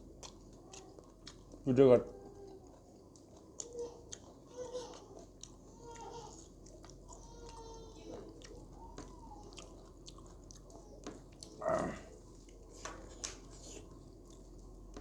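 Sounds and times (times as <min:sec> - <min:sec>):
chewing and biting food: 0:00.0 - 0:15.0
short vocal sound: 0:11.6 - 0:12.1.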